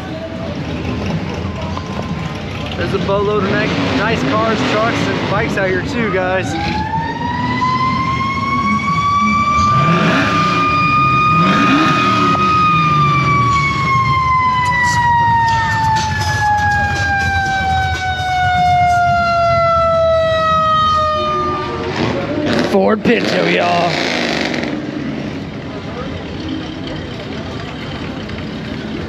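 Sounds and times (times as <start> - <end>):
siren wailing: 1.3 - 22.5
low engine rumble: 12.4 - 29.0.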